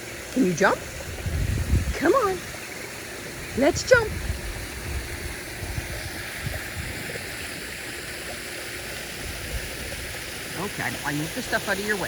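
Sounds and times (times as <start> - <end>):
rush of falling water: 0.0 - 12.0.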